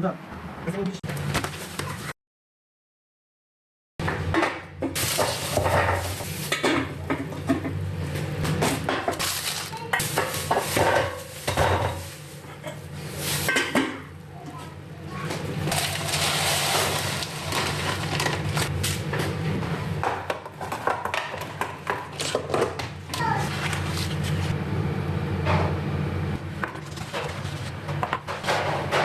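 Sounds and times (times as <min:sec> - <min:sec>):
kitchen items clicking and knocking: 0:04.1 - 0:07.8, 0:08.5 - 0:12.8, 0:15.3 - 0:19.3, 0:20.0 - 0:23.9, 0:26.6 - 0:29.0.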